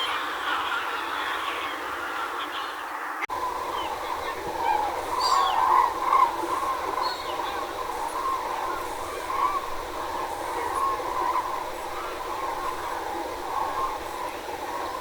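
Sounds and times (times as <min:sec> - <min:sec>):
waterfowl calling: 0:00.0 - 0:15.0
water rushing through sluice: 0:03.3 - 0:15.0.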